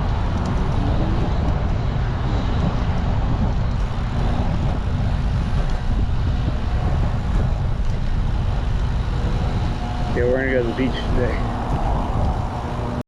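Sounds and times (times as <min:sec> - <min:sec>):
road traffic passing: 0:00.0 - 0:13.0
wind on microphone: 0:00.0 - 0:13.0.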